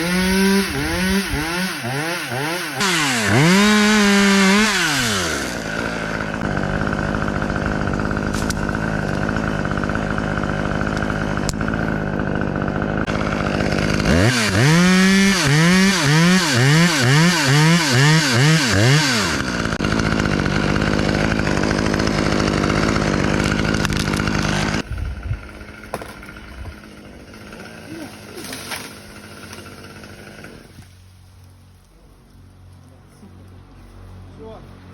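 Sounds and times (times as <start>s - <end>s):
chainsaw engine revving: 0.0s - 31.0s.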